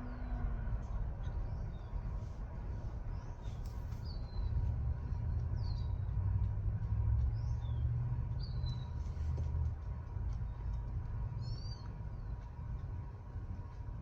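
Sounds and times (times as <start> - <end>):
steady low rumble: 0.0 - 14.0
bird chirping: 11.4 - 12.3.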